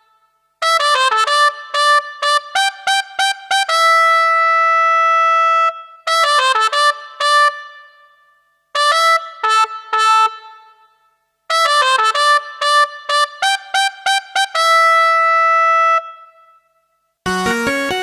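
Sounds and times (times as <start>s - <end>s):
synthesizer brass-like notes: 11.5s - 18.0s.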